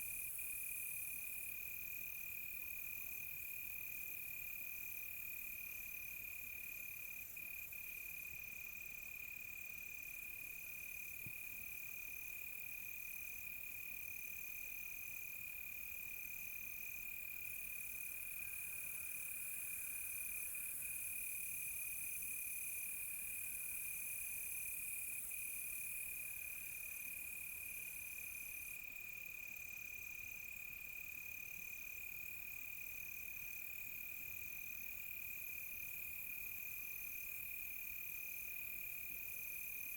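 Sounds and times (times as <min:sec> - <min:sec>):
insect chirping in regular pulse: 0:15.5 - 0:28.8.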